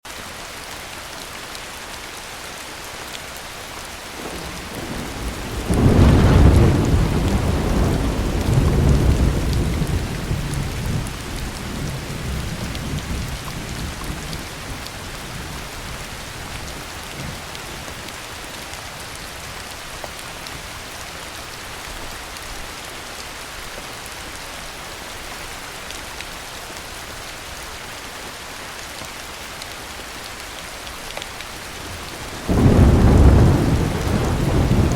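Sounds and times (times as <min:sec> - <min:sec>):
heavy rain: 0:00.0 - 0:34.9
thunder rumbling: 0:04.2 - 0:17.9, 0:31.9 - 0:34.9.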